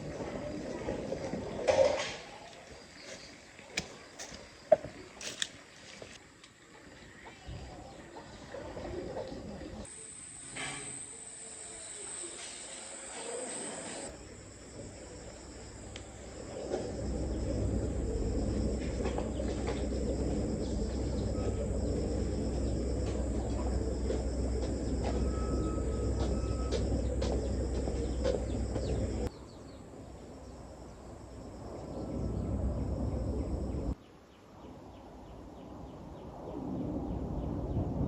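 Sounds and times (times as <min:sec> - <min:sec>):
low rumbling noise: 0:09.8 - 0:29.3, 0:30.0 - 0:34.0
insects singing: 0:09.9 - 0:29.3.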